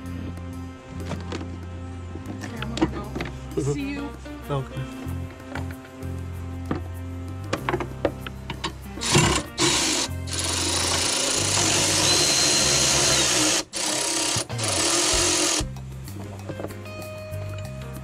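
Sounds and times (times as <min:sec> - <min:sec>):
background music: 0:00.0 - 0:18.0
power tool running: 0:08.6 - 0:15.7.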